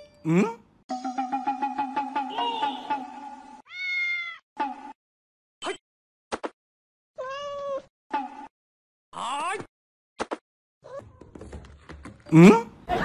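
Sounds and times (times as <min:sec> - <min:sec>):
cat meowing: 0:03.7 - 0:04.4.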